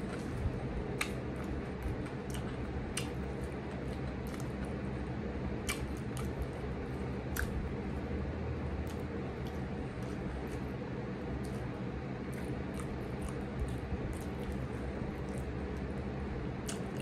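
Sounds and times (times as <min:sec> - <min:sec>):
wet chewing mouth sounds: 0:00.0 - 0:04.8, 0:05.6 - 0:07.7, 0:11.4 - 0:15.9
low background hum: 0:00.0 - 0:17.0.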